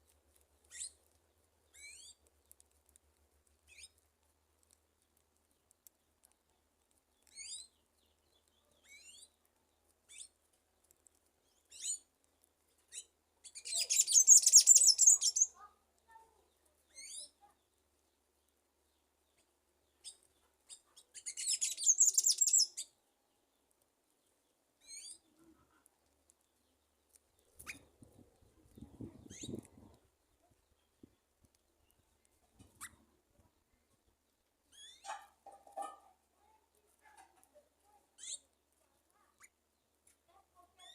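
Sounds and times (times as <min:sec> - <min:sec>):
birds chirping: 0:12.9 - 0:15.8, 0:16.4 - 0:23.6
dense high bird twittering: 0:13.7 - 0:15.5, 0:21.4 - 0:22.8.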